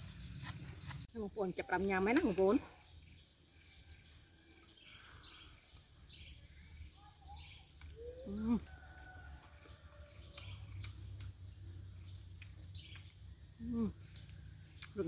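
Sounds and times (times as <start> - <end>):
birds calling: 2.2 - 8.7.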